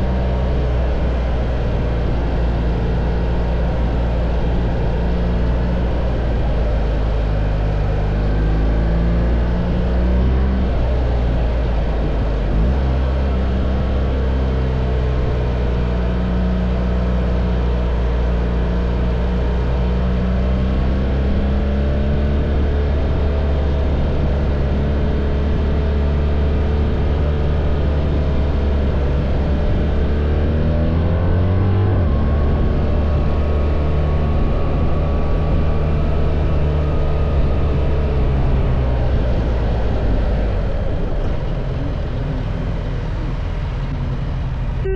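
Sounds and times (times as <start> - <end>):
motorcycle engine cruising: 0.0 - 44.9
wind noise: 20.6 - 44.9.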